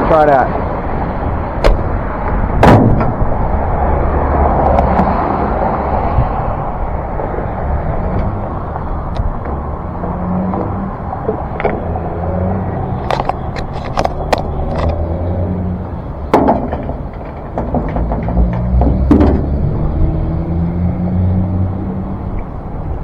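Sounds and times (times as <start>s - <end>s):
single thump: 1.6s - 3.2s
sharp clicks and knocks: 1.6s - 3.4s, 8.0s - 12.2s, 13.0s - 15.1s, 16.2s - 19.7s.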